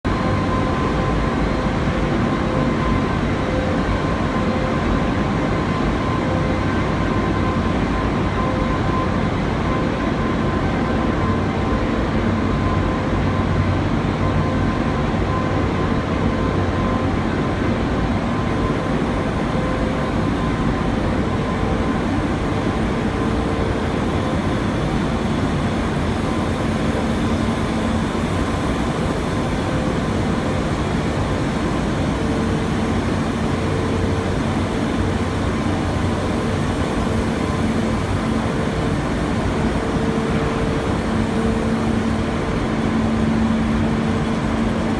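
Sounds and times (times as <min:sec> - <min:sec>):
industrial furnace roaring: 0:00.1 - 0:08.3, 0:14.6 - 0:44.9
faint steady tones: 0:24.4 - 0:44.9.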